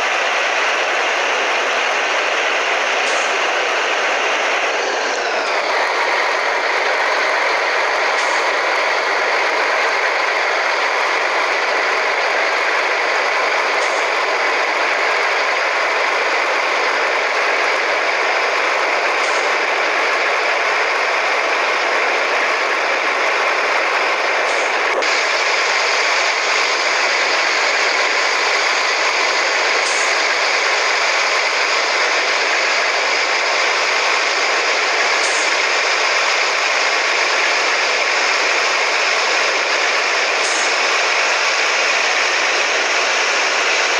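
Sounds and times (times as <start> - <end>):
truck engine running: 0.0 - 43.9.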